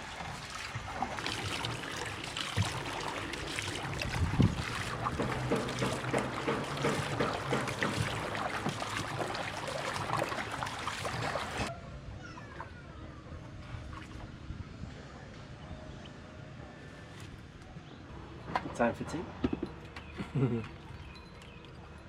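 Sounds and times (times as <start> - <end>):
water splashing against boat: 0.0 - 11.7.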